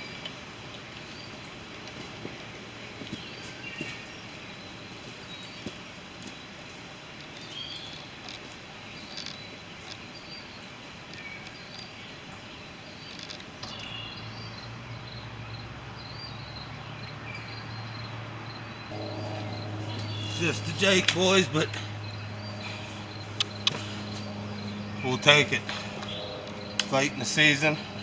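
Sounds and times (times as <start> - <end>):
low steady hum: 18.8 - 28.0.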